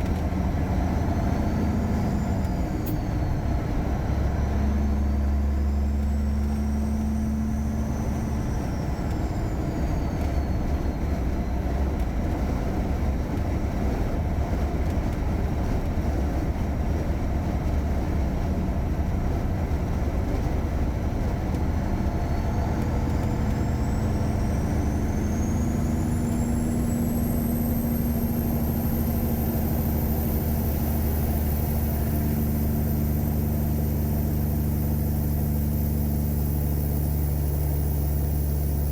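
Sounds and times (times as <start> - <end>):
truck diesel engine running: 0.0 - 38.9.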